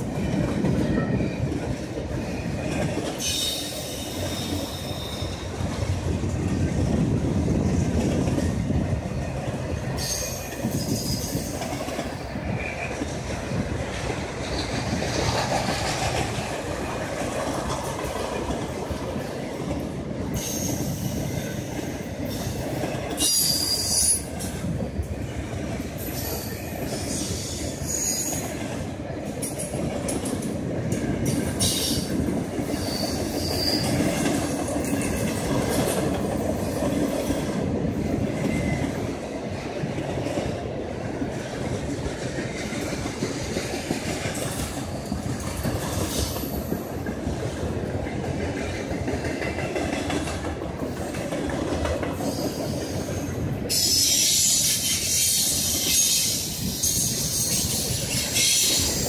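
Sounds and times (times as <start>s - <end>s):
freight train wheels rumbling: 0.0s - 59.0s
high-pitched wheel squeals: 3.2s - 5.5s, 23.2s - 24.3s, 26.3s - 28.5s, 32.8s - 34.1s.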